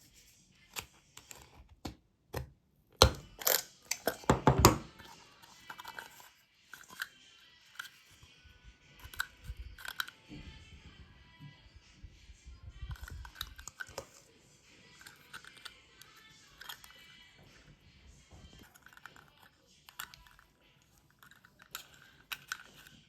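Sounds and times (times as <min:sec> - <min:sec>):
clicks and crunches of plastic parts: 0:09.0 - 0:10.2, 0:12.9 - 0:14.2, 0:18.5 - 0:23.0.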